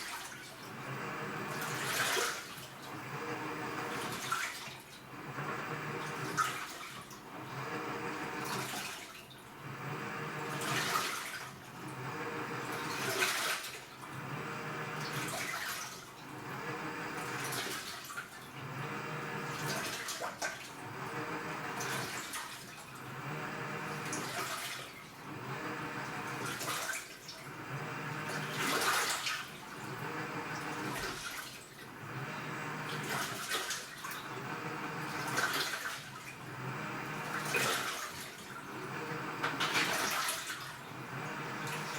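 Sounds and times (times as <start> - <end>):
washing machine motor humming: 0.0 - 41.9
water sloshing: 24.0 - 25.2, 37.2 - 38.7, 39.5 - 41.9.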